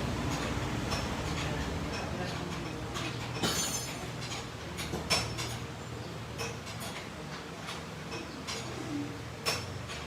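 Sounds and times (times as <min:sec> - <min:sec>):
hand tools tapping on car parts: 0:00.2 - 0:05.7.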